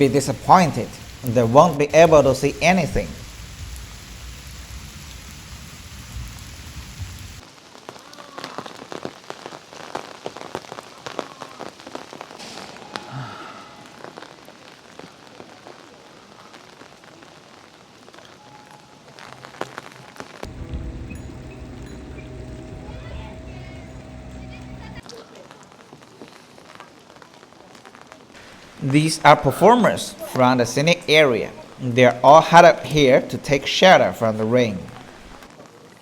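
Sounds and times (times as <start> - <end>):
heavy rain falling: 0.0 - 25.1, 25.8 - 36.0
low rumble: 20.5 - 25.0.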